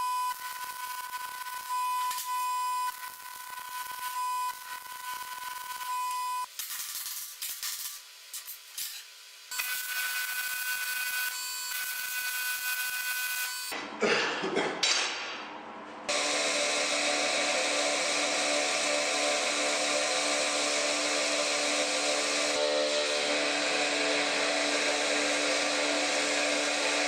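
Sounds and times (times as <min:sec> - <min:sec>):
power tool on steel parts: 0:00.4 - 0:13.8.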